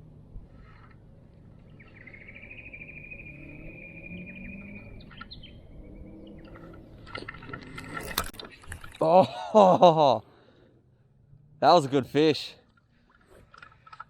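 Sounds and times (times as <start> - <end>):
bird chirps: 1.6 - 6.7
bird trilling: 1.7 - 6.6.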